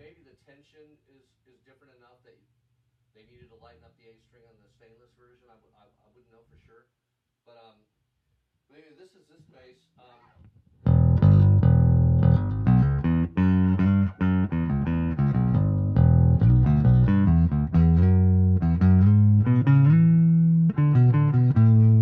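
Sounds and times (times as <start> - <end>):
electric bass plucked notes: 10.8 - 22.0.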